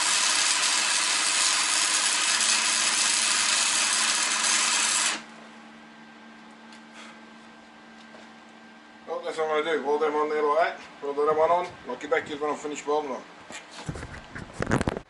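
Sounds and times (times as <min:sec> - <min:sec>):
angle grinder on steel: 0:00.0 - 0:05.3.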